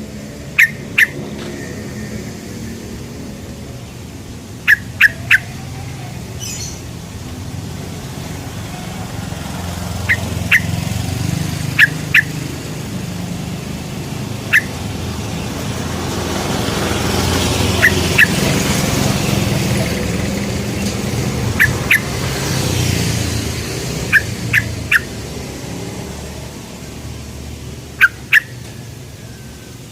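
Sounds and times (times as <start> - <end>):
bird sharp call notes: 0.5 - 1.2, 4.6 - 6.8, 9.9 - 11.0, 11.6 - 12.5, 14.3 - 15.0, 17.6 - 18.5, 21.5 - 22.2, 24.0 - 25.2, 27.9 - 29.5.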